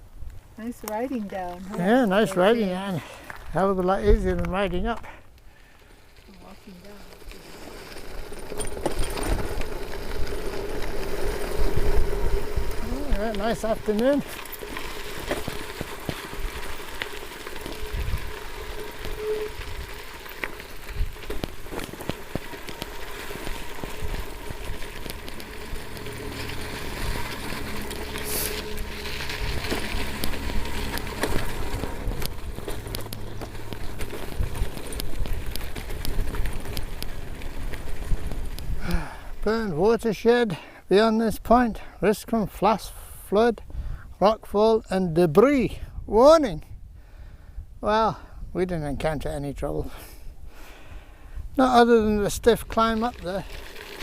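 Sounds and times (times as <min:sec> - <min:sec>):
mountain bike rolling on dirt: 0:00.0 - 0:54.0
tyres crunching over gravel: 0:00.6 - 0:42.6, 0:51.5 - 0:54.0
steady buzz: 0:07.9 - 0:39.7
wind rumble on microphone: 0:08.7 - 0:14.0, 0:17.6 - 0:20.2, 0:22.3 - 0:39.5, 0:43.6 - 0:44.2.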